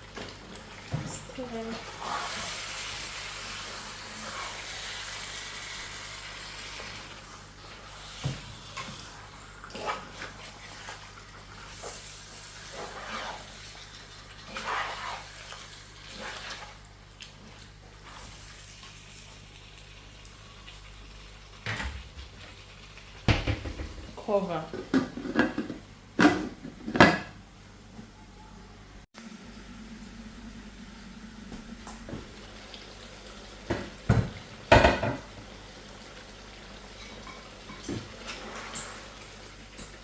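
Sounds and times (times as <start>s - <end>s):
chicken sizzling in hot oil: 0.0s - 21.7s, 30.4s - 40.0s.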